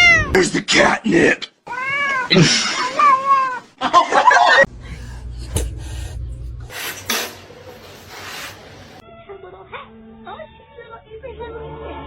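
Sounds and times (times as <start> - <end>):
cat meowing loudly: 0.0 - 0.4, 1.7 - 3.6
low hum: 4.7 - 7.8.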